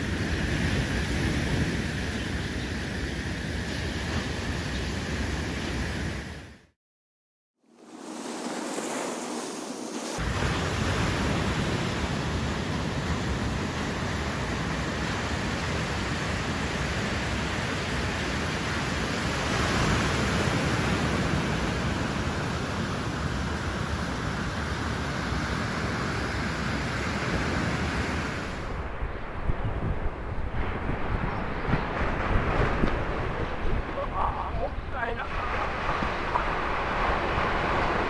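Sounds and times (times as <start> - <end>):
ocean surf: 7.7 - 38.0
wind noise on microphone: 27.6 - 38.0.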